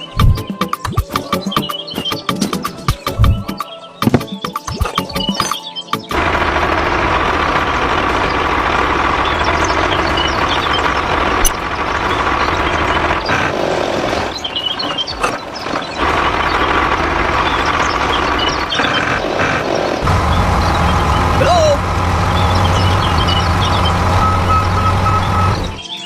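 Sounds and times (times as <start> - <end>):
model truck engine humming: 6.1 - 25.9.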